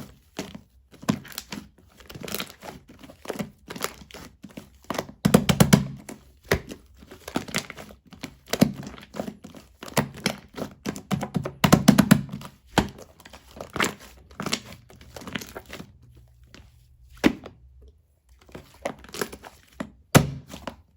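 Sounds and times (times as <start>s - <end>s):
slime popping and crackling: 18.8s - 20.8s.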